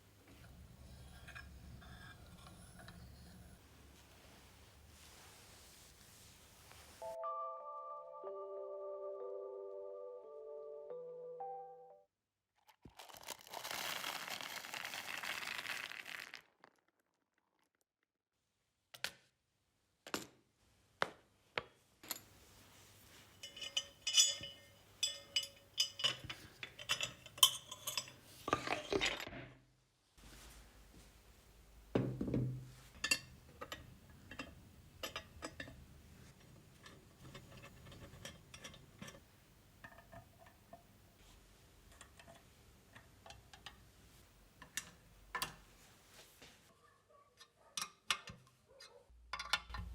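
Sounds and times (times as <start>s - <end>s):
metal tools clinking: 23.1s - 29.2s.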